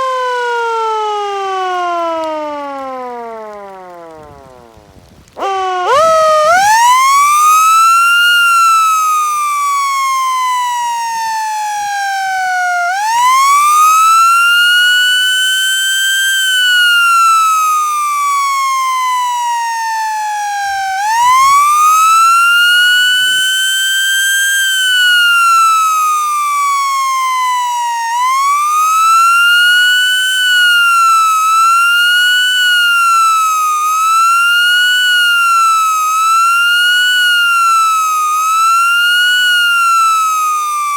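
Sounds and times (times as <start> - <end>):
siren wailing: 0.0 - 40.9.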